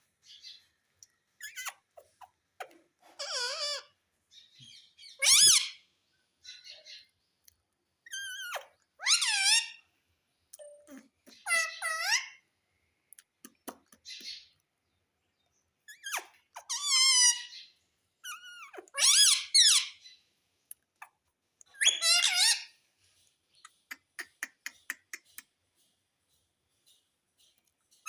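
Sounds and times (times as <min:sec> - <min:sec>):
parrot warbling screeches: 0:03.2 - 0:03.9, 0:05.2 - 0:05.8, 0:08.1 - 0:09.8, 0:16.0 - 0:17.6, 0:18.3 - 0:20.0, 0:21.8 - 0:22.7.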